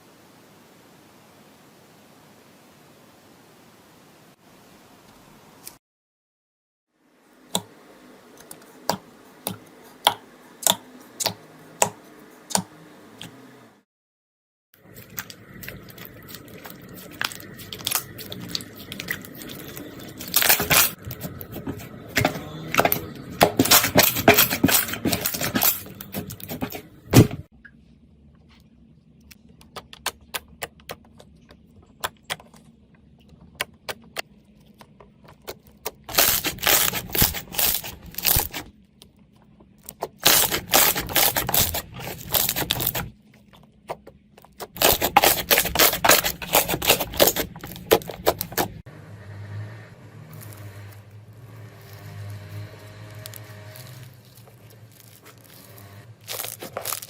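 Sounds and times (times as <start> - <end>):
slime crackling and popping: 36.1 - 38.6, 40.2 - 43.0, 44.8 - 48.7, 53.0 - 57.0.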